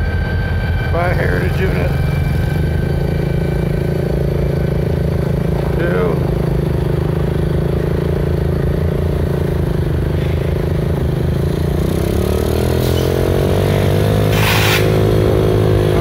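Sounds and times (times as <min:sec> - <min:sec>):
engine running: 0:00.0 - 0:16.0
short burst of hiss: 0:14.3 - 0:14.9.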